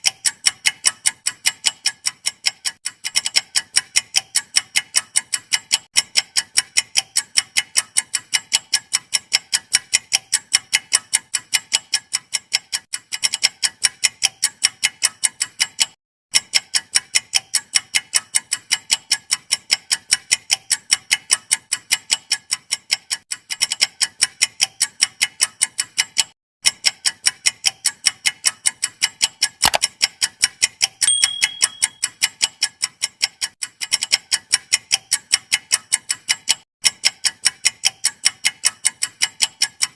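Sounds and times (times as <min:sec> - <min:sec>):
rapid clock ticking: 0:00.0 - 0:39.9
short high beep: 0:31.1 - 0:32.0.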